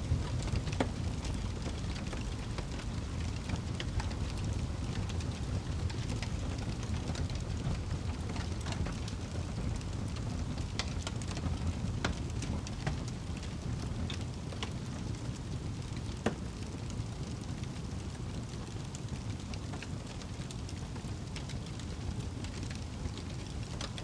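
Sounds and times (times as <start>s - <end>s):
fire crackles and pops: 0.0s - 24.0s
low rumble of flames: 0.0s - 24.0s.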